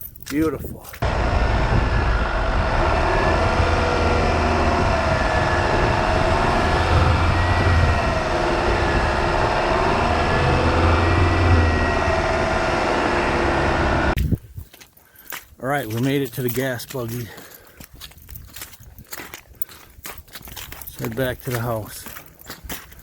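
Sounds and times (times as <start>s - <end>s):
vehicle motor whine: 1.0s - 14.2s
steady low rumble: 1.0s - 14.4s.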